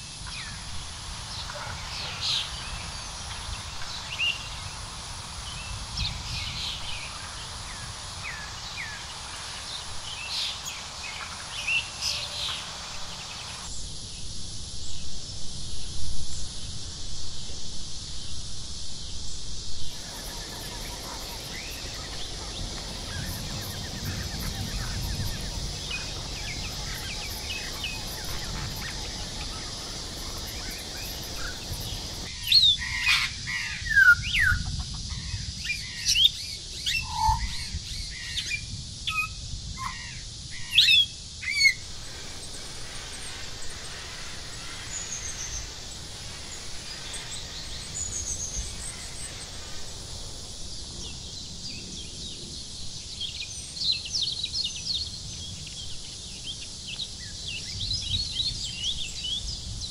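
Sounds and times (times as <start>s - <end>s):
birds chirping: 0.0s - 13.7s, 19.9s - 38.5s, 39.9s - 59.8s
forest background hiss: 0.0s - 59.9s
high whistled bird notes: 36.8s - 37.6s.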